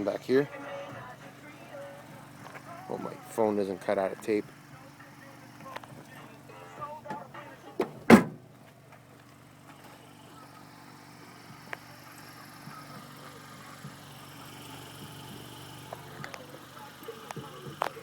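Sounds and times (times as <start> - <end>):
car engine idling: 0.0 - 18.0
car trunk lid thud: 7.8 - 8.6.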